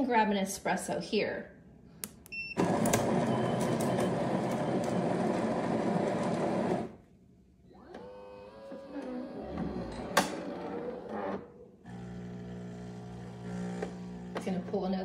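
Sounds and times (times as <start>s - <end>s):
coffee grinder grinding beans: 2.6s - 6.9s, 11.9s - 14.9s
espresso machine whirring: 2.6s - 7.0s, 8.0s - 15.0s.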